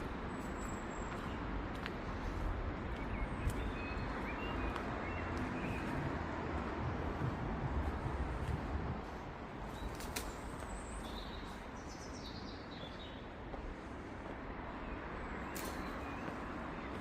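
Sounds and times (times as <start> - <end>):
distant traffic: 0.0 - 17.0
low vehicle rumble: 0.9 - 10.0.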